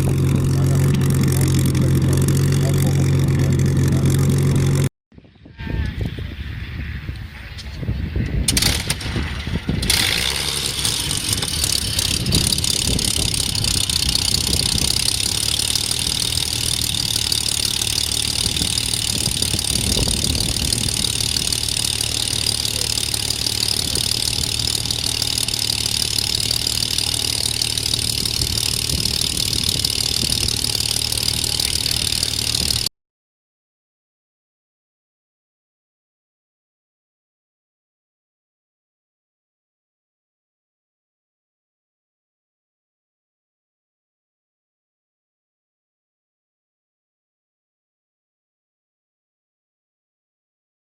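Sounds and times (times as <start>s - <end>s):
piston aircraft engine running: 0.0s - 4.9s, 6.7s - 32.9s.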